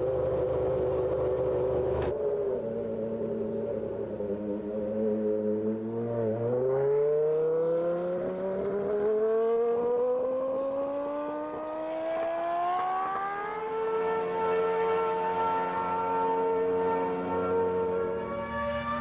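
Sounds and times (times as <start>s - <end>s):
racing car engine revving: 0.0s - 19.0s.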